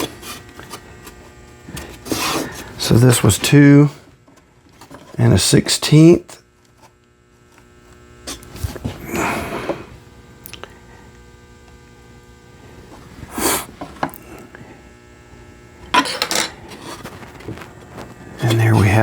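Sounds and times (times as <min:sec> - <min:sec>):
electrical hum: 0:00.0 - 0:19.0
scraping or rustling: 0:16.6 - 0:18.6.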